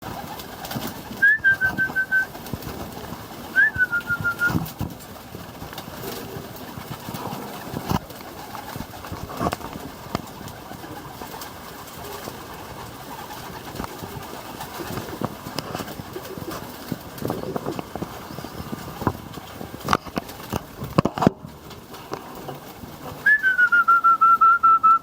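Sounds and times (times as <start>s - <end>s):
pigeons cooing: 0.0s - 25.0s
sharp clicks and knocks: 13.6s - 23.2s.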